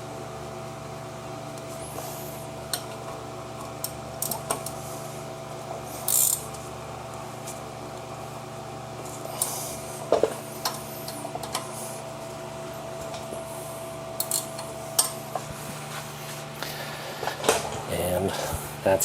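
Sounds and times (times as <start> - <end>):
steady hum: 0.0 - 19.0
hand tools clicking and clinking: 14.2 - 15.2.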